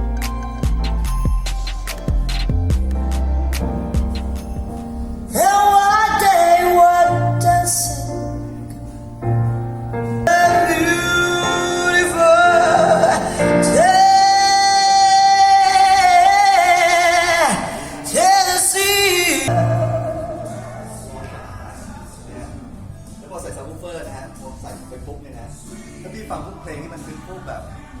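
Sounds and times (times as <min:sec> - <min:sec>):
low bass notes: 0:00.0 - 0:05.5, 0:19.4 - 0:23.0
singer holding wavering notes: 0:10.3 - 0:22.6.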